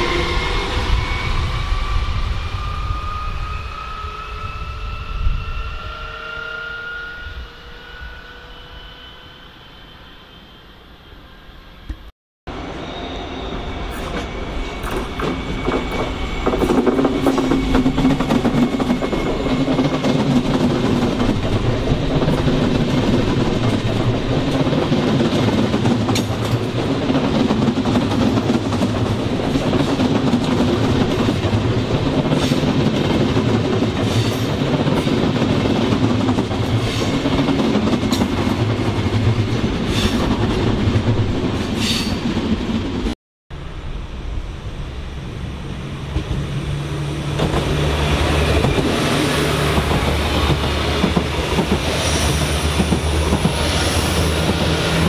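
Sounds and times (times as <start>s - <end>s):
train running past: 0.0s - 55.0s.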